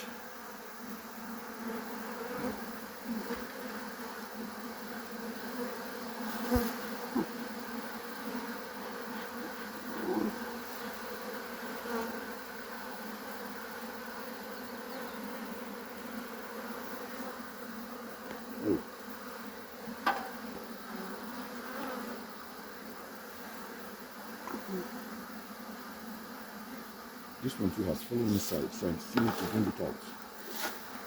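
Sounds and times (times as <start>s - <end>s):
bees buzzing: 0.0s - 31.0s
hive frames knocking: 29.1s - 29.8s.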